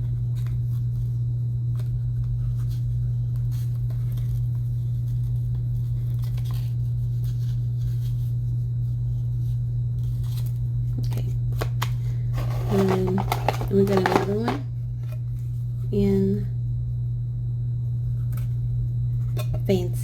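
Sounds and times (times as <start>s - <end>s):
steady low hum: 0.0s - 20.0s
plastic packaging clicks and scratches: 10.1s - 14.6s.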